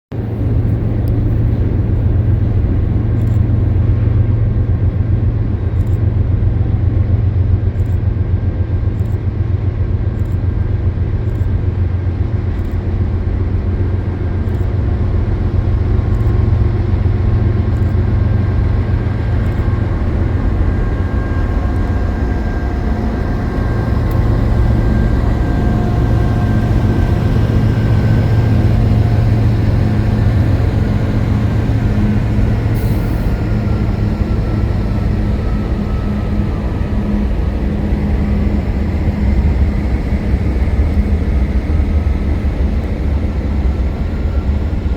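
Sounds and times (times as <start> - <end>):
train rumbling across bridge: 0.1 - 44.9
faint high whine: 0.2 - 44.9
light regular clicks: 3.2 - 3.5, 7.8 - 8.1, 9.0 - 9.2, 10.2 - 10.5, 11.2 - 11.5, 14.5 - 14.8, 16.1 - 16.4, 19.4 - 19.7.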